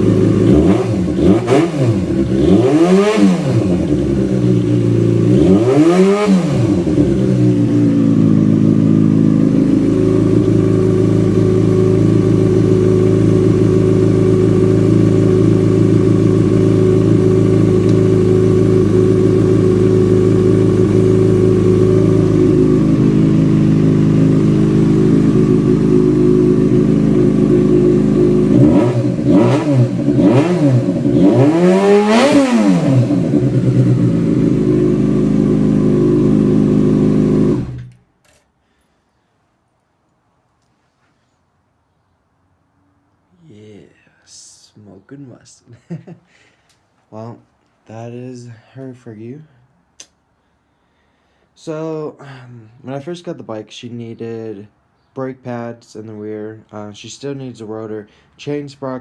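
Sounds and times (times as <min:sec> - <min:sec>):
motorcycle engine idling and revving: 0:00.0 - 0:38.0.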